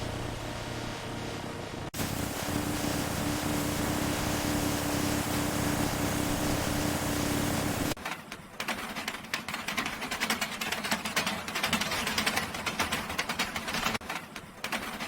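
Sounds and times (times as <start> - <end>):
machine hum: 0.0 - 8.0.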